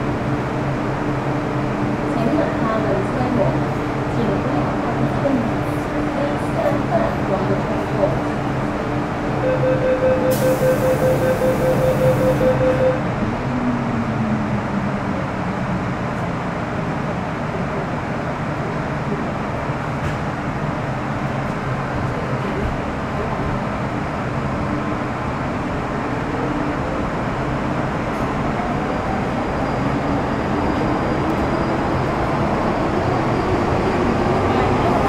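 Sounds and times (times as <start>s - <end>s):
train interior rumble: 0.0s - 35.0s
fast pulsing beep: 9.5s - 13.0s.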